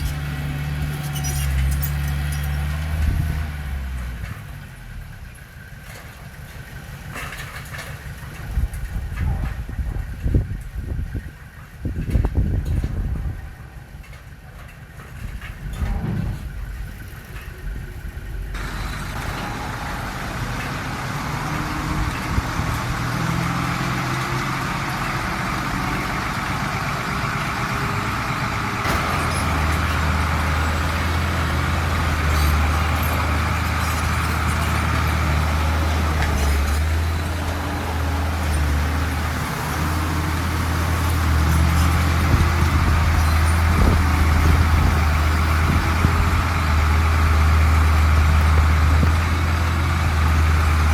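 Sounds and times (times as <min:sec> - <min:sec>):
heavy diesel engine under load: 0:00.0 - 0:50.9.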